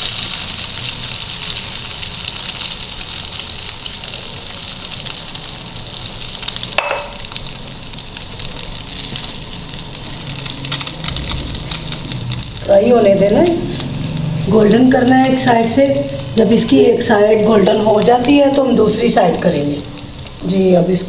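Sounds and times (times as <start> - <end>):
sandwich sizzling in hot oil: 0.0 - 21.0.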